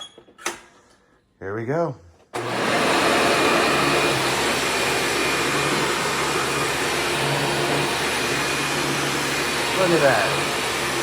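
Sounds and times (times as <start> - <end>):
vacuum cleaner running: 2.4 - 11.0.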